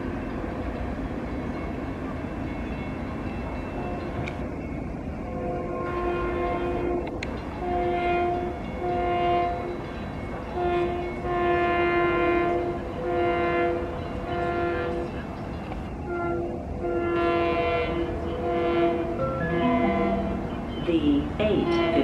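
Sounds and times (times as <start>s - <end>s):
train horn short blasts: 5.3s - 9.8s, 10.5s - 15.1s, 16.0s - 20.6s.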